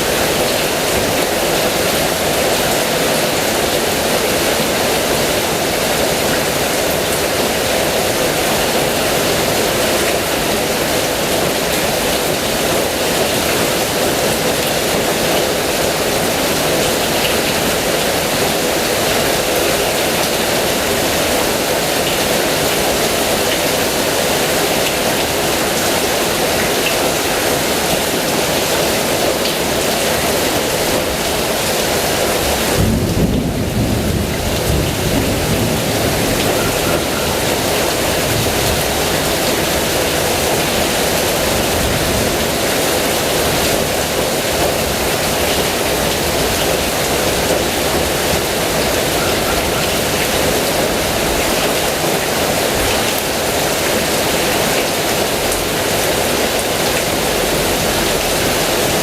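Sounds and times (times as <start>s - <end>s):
heavy rain: 0.0s - 59.0s
thunder rumbling: 32.5s - 42.7s.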